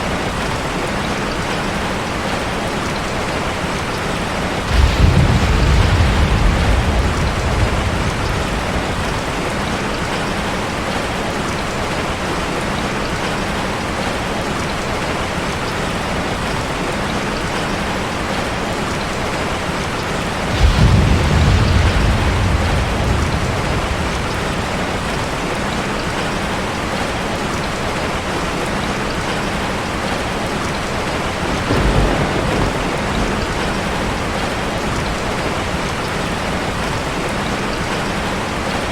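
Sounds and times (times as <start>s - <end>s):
heavy rain on a car: 0.0s - 38.9s
thunder rumbling: 4.0s - 11.6s, 20.0s - 27.7s, 29.3s - 38.9s.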